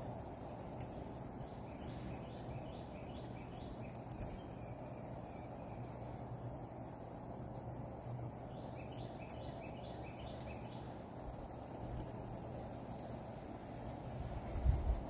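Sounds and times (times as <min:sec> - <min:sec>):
background hiss: 0:00.0 - 0:15.0
bird calling repeated notes: 0:08.5 - 0:10.9.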